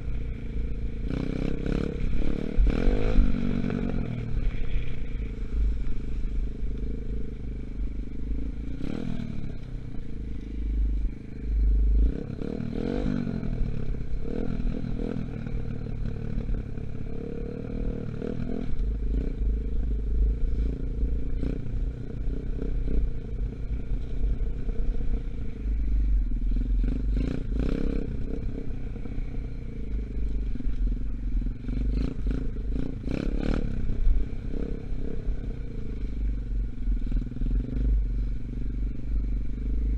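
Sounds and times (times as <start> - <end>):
dirt bike engine revving: 1.0 - 5.1.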